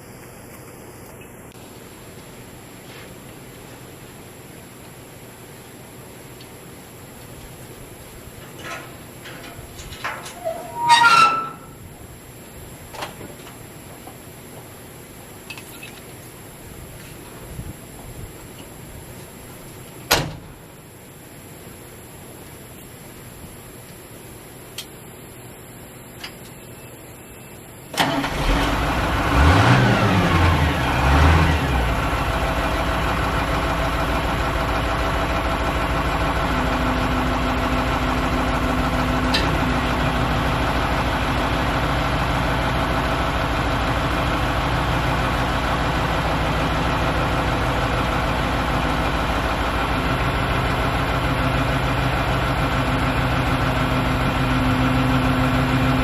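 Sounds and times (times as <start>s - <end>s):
diesel engine starting and idling: 27.9s - 56.0s.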